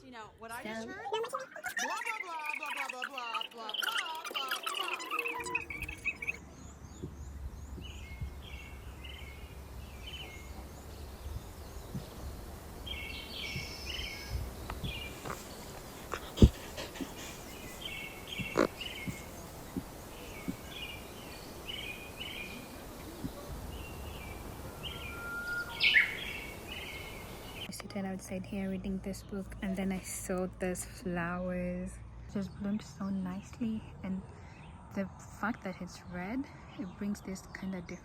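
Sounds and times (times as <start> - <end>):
small birds chirping: 0.6 - 31.6
low wind-like rumble: 5.8 - 16.6.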